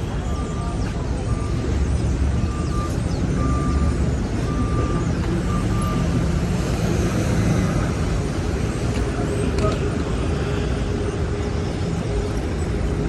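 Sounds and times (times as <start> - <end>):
reversing alarm beeping: 0.0 - 6.3
street traffic rumble: 0.0 - 13.0.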